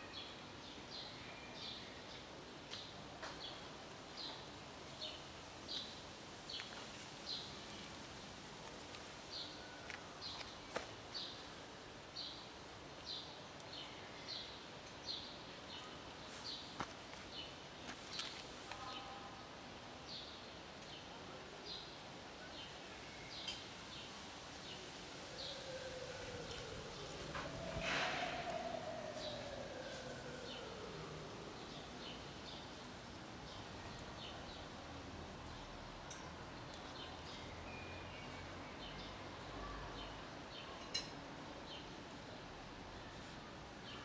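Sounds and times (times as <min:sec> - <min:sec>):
outdoor background hiss: 0:00.0 - 0:44.0.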